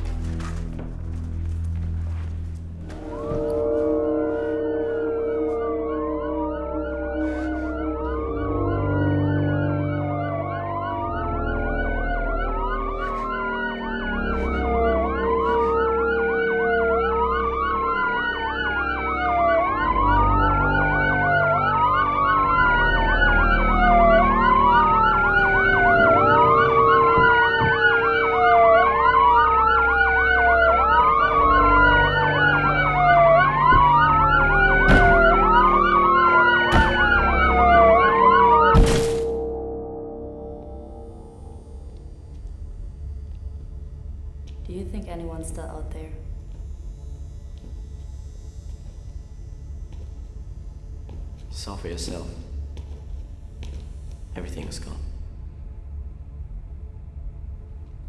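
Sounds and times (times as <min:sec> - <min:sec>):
emergency sirens wailing: 0:02.9 - 0:38.9.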